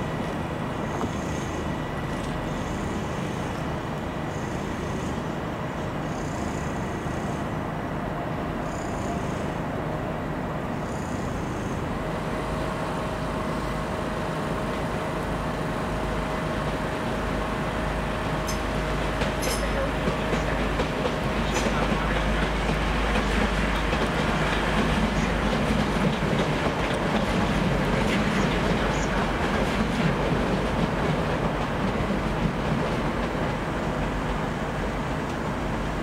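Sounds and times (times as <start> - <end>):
passenger train running: 0.0 - 36.0.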